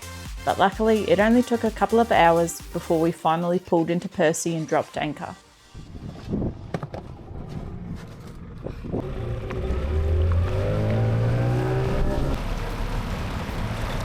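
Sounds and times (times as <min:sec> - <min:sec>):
boat engine revving: 0:06.5 - 0:14.0.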